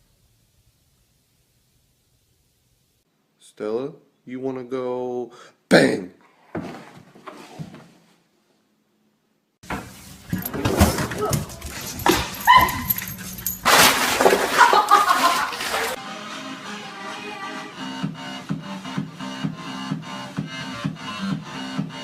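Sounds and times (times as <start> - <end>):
dog barking and whining: 10.4 - 13.7
music: 16.0 - 22.0.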